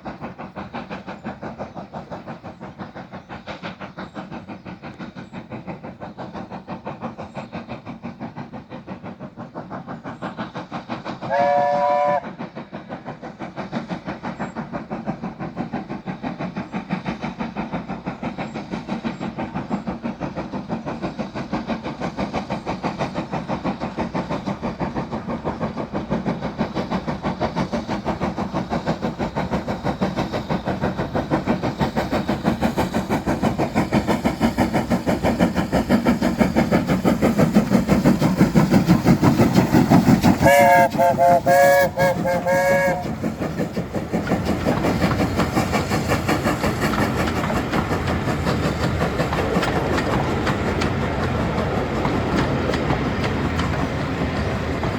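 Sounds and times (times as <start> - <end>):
steam locomotive exhaust beats: 0.0 - 54.9
steam whistle blast: 11.3 - 12.4, 40.4 - 43.2.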